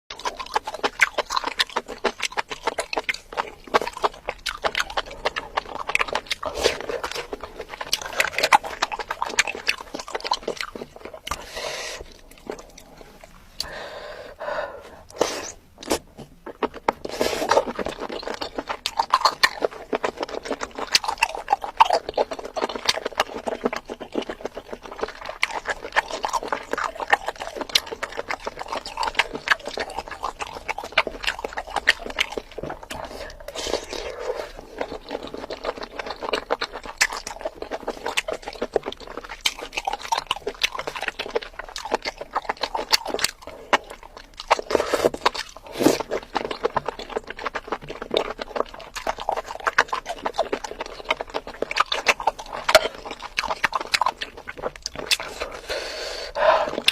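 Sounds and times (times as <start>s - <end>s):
wet chewing and lip-smacking: 0.1s - 56.9s
breathy sounds: 11.3s - 15.6s, 32.9s - 34.8s, 55.2s - 56.9s.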